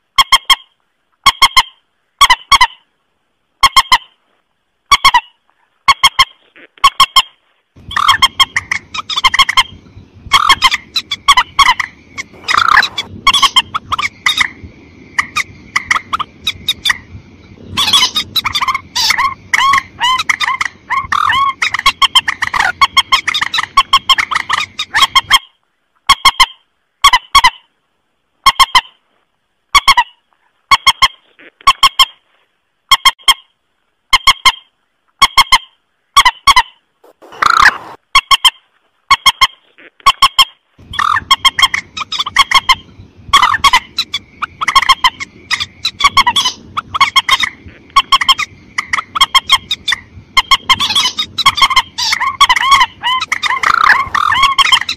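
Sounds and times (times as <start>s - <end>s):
marsh bird honking calls: 4.9s - 17.0s, 17.7s - 25.4s, 35.3s - 38.0s, 39.2s - 54.9s.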